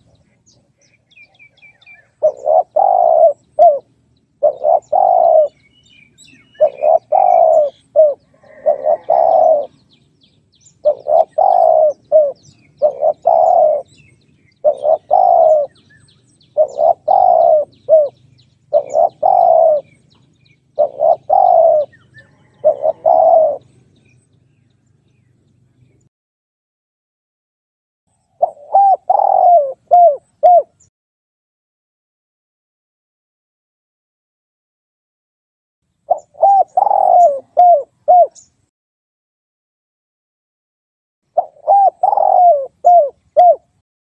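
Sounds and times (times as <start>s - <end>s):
small birds chirping: 0.0s - 26.1s, 28.1s - 30.9s, 35.9s - 38.7s, 41.3s - 43.8s
dove cooing: 1.1s - 9.9s, 10.7s - 16.0s, 16.6s - 23.8s, 28.4s - 30.9s, 36.1s - 38.5s, 41.4s - 43.8s.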